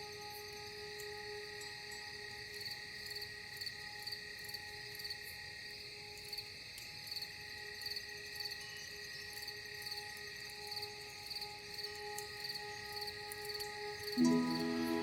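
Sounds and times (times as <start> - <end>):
cricket chirping: 0.0 - 15.0
soft music drone: 0.0 - 15.0.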